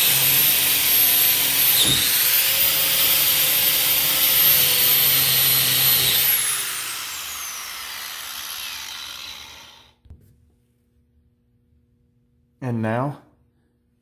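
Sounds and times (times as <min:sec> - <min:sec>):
angle grinder whining: 0:00.0 - 0:10.0.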